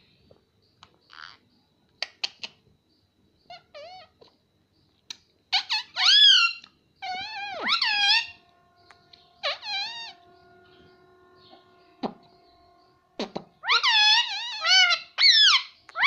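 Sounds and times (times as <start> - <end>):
parrot calling: 3.5 - 4.2, 5.5 - 10.3, 13.2 - 16.0.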